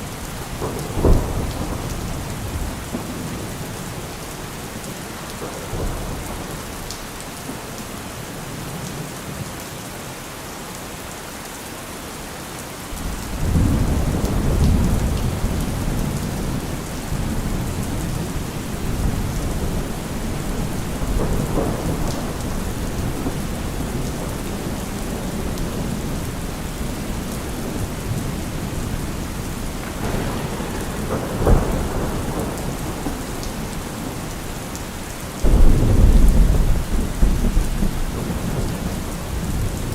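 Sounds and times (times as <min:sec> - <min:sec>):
rolling thunder: 0:00.0 - 0:07.1, 0:12.9 - 0:39.9
steady rain: 0:00.0 - 0:39.9
sharp thunder crack: 0:00.5 - 0:03.4, 0:13.0 - 0:34.6, 0:35.4 - 0:39.9.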